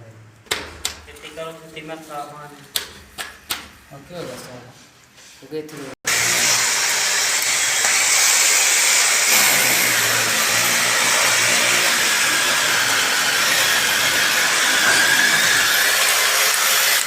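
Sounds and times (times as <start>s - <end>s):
power tool motor running: 6.1s - 17.0s.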